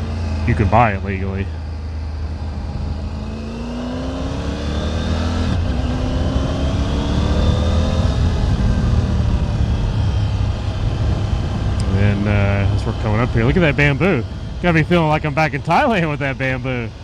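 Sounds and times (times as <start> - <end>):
motorcycle engine accelerating: 0.0 - 17.0
wind and road rumble: 0.0 - 17.0.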